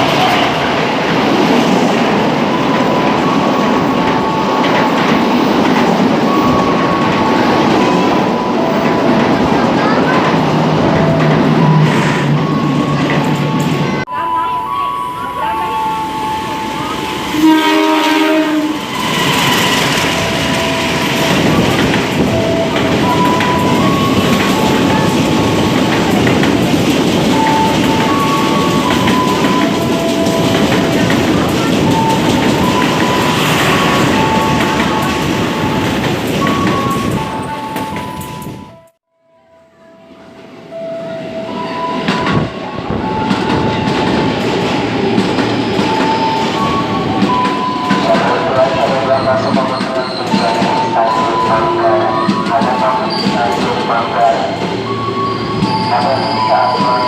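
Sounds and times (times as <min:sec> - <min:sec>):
train rumble and wheel clatter: 0:00.0 - 0:39.0, 0:40.0 - 0:57.0
train horn: 0:16.6 - 0:19.9.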